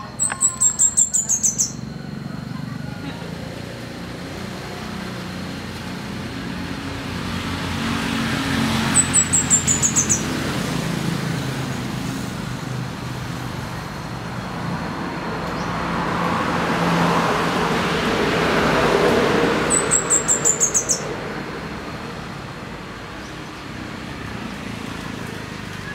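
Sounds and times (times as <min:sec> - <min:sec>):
bird singing high notes: 0:00.0 - 0:02.0, 0:08.8 - 0:10.3
road traffic: 0:00.0 - 0:25.9.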